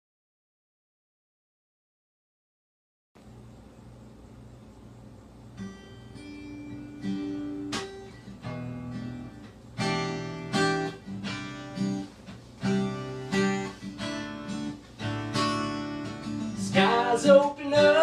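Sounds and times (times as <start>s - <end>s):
acoustic guitar strumming chords: 5.5s - 18.0s.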